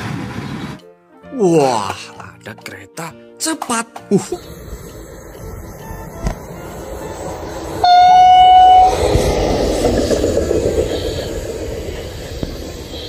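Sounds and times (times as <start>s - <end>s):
train rushing past: 4.4s - 13.0s
train horn blast: 5.4s - 9.7s.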